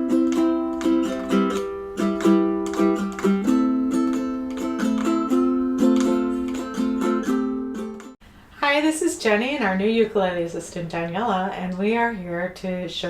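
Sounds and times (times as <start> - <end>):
ukulele strumming: 0.0 - 8.2.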